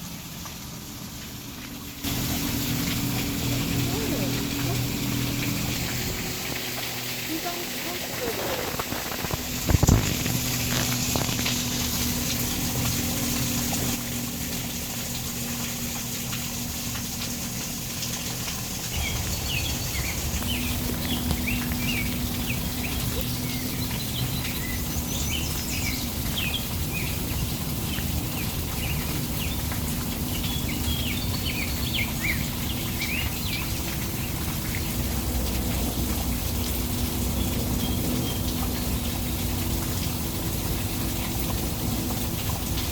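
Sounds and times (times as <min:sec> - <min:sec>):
water rushing: 0:00.0 - 0:42.9
low hum: 0:18.4 - 0:31.8
birds chirping: 0:18.8 - 0:35.0.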